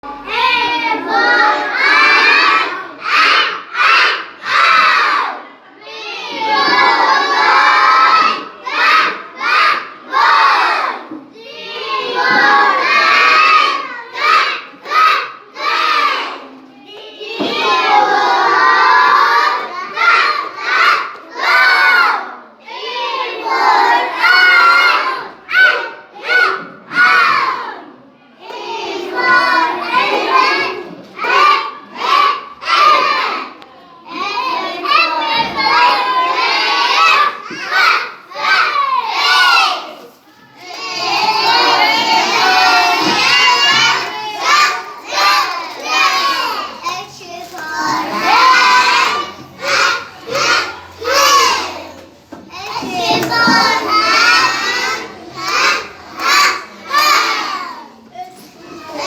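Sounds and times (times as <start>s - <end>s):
children shouting in chorus: 0.1s - 59.0s.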